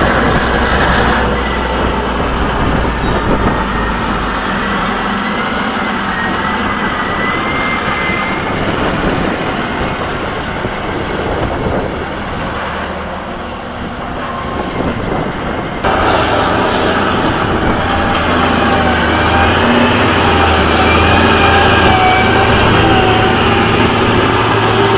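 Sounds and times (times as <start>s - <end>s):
bulldozer diesel engine: 0.0s - 24.9s
engine whine: 0.0s - 24.9s
thin high squeal: 16.1s - 23.9s.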